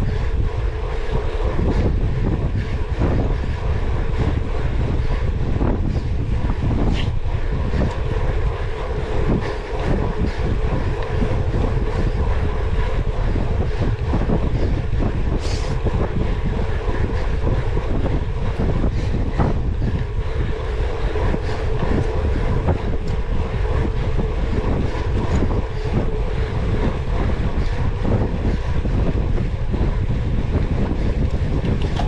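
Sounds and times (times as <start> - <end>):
bike chain and frame rattling: 0.0 - 32.0
wind rush on microphone: 0.0 - 32.0.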